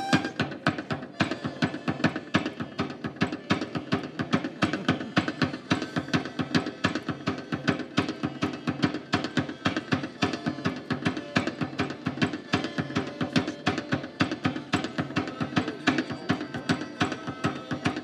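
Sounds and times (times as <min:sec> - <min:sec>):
sustained held notes: 0:00.0 - 0:00.4
drums beating fast rhythm: 0:00.0 - 0:18.0.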